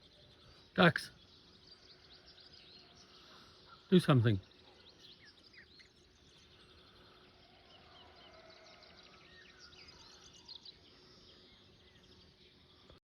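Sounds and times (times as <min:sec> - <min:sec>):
low background hiss: 0:00.0 - 0:13.0
small birds chirping: 0:00.0 - 0:13.0.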